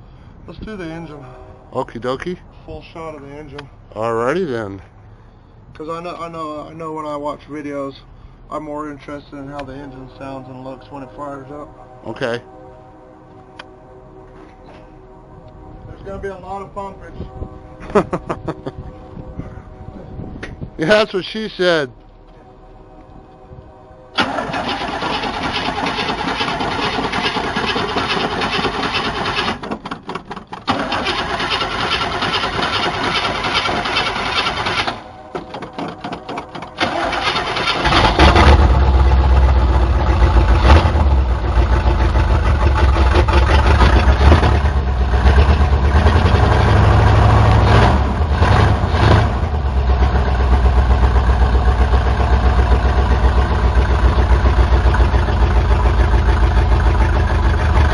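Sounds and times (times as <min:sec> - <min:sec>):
engine starter cranking: 0:24.2 - 0:38.9
engine running loud: 0:36.8 - 0:57.9.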